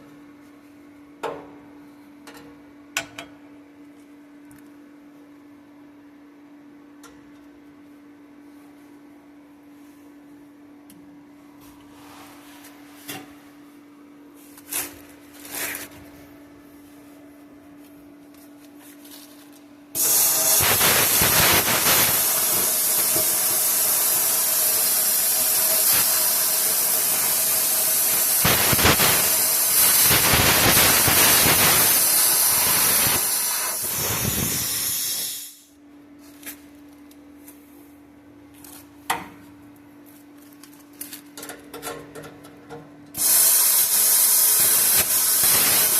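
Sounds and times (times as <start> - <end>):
plasma cutter hissing: 20.0 - 35.7, 43.2 - 45.9.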